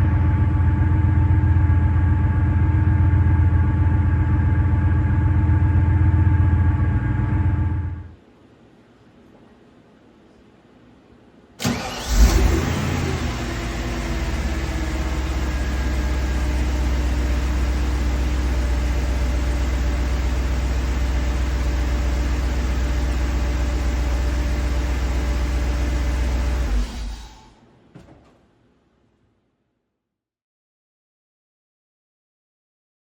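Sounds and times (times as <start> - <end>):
car engine starting and idling: 11.6 - 27.5.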